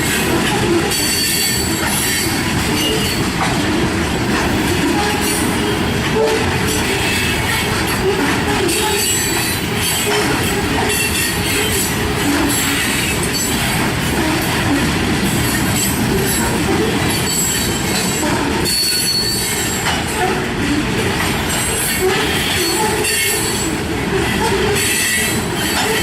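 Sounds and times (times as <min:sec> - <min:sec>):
freight train rolling on rails: 0:00.0 - 0:26.0
train wheel squeals: 0:00.1 - 0:03.3, 0:06.3 - 0:13.7, 0:15.4 - 0:20.5, 0:21.5 - 0:26.0.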